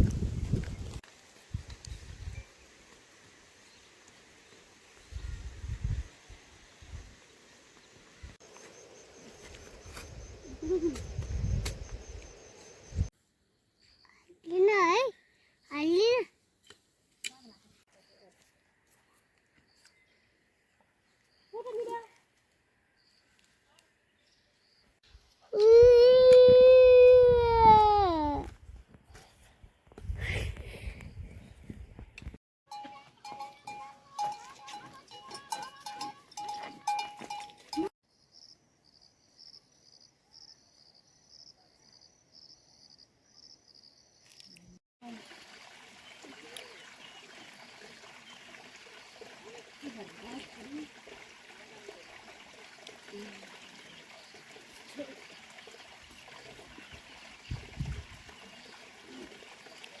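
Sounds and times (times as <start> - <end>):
livestock bell clanking: 32.7 - 37.9
running water trickling: 45.0 - 60.0.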